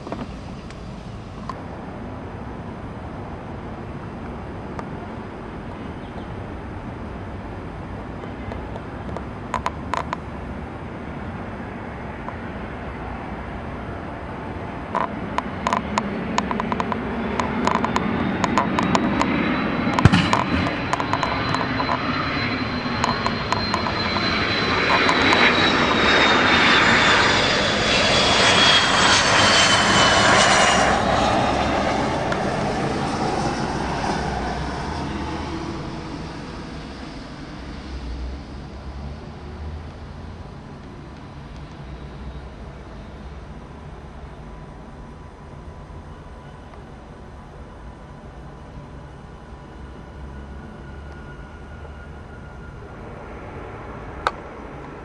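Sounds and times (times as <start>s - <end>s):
jet airliner passing: 0.0s - 44.7s, 45.8s - 55.0s
high engine whine: 0.0s - 55.0s
sharp clicks: 15.4s - 19.3s.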